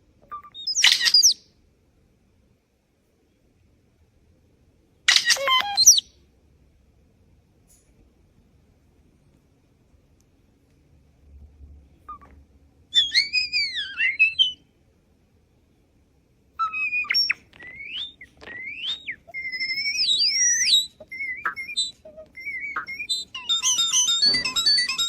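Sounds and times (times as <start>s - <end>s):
starling whistling: 12.9s - 14.7s, 16.6s - 25.0s.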